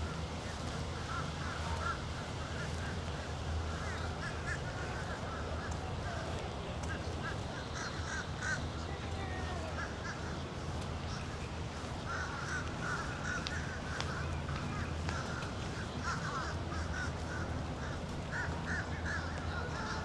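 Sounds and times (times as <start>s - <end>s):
birds calling: 6.9s - 20.0s.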